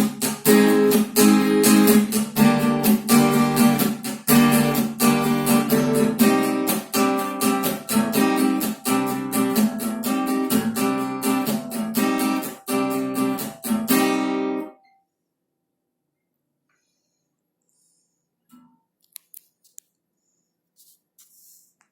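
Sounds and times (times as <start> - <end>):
acoustic guitar strumming: 0.0 - 14.8.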